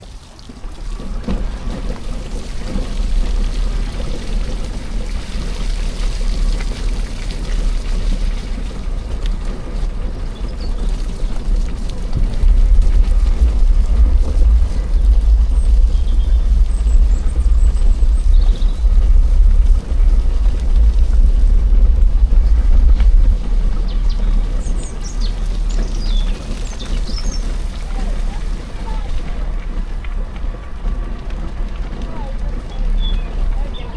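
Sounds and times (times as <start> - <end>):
steady rushing rumble: 0.0 - 33.9
songbird chirping: 13.1 - 29.5, 32.1 - 33.9.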